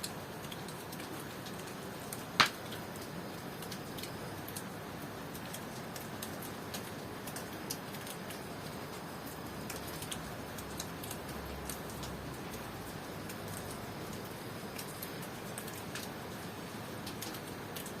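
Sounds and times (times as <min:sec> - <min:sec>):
steady rainfall hiss: 0:00.0 - 0:18.0
drops ticking on surfaces: 0:00.4 - 0:04.7.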